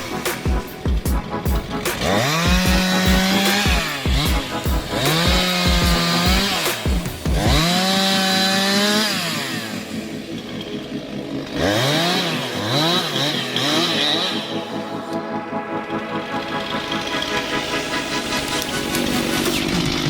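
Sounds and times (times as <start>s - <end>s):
chainsaw revving: 1.6s - 15.0s, 18.2s - 20.0s.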